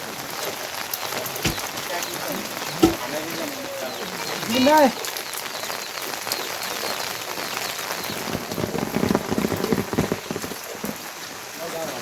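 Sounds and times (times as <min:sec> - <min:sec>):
heavy rain pattering: 0:00.0 - 0:12.0
low thuds and splashes: 0:01.4 - 0:01.9, 0:02.7 - 0:03.2.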